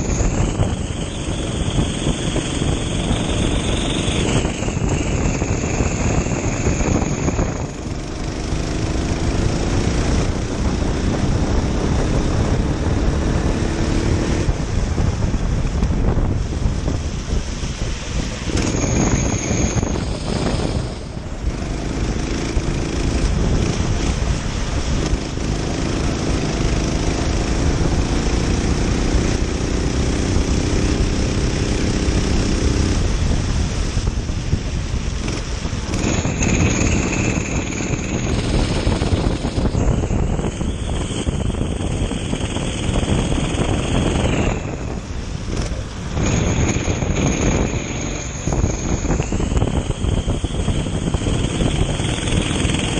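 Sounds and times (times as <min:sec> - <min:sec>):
kart engine racing: 0:00.0 - 0:52.9
wind rush on microphone: 0:00.0 - 0:52.9.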